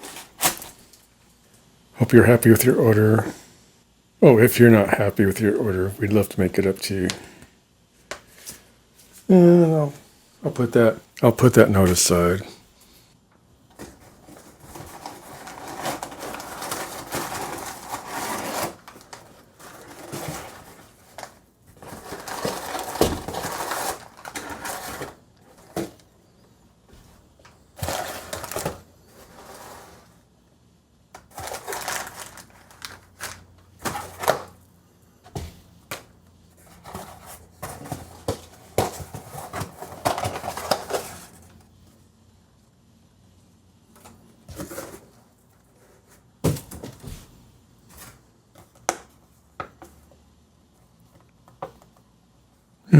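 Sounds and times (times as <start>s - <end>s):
packaging rustling and crinkling: 13.6s - 30.2s, 31.2s - 34.6s, 35.3s - 41.6s.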